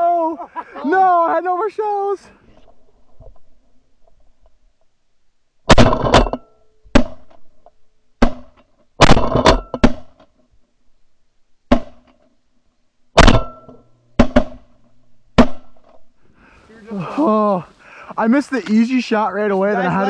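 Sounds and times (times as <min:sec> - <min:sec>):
shotgun blasts: 0:05.7 - 0:07.2, 0:08.2 - 0:10.1, 0:13.2 - 0:14.6.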